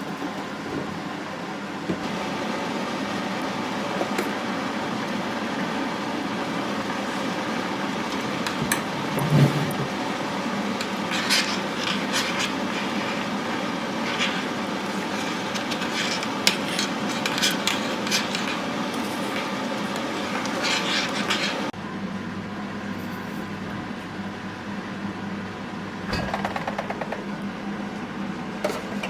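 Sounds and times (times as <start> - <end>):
steady background hum: 0.0 - 29.0
rustling scrapes: 9.0 - 10.0, 10.8 - 21.7.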